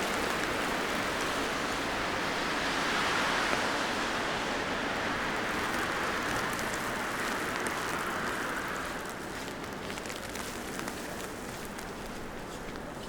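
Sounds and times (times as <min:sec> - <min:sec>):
tyres hissing on wet street: 0:00.0 - 0:10.0.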